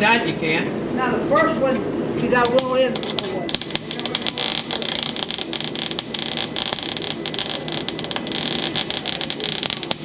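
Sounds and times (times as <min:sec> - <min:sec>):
welder arc crackling: 0:02.3 - 0:10.0.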